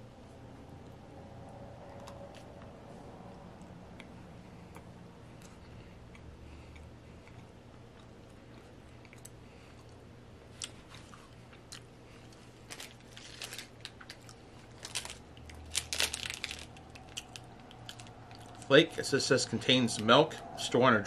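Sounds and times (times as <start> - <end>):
chewing crumbly chocolate: 3.3 - 19.0.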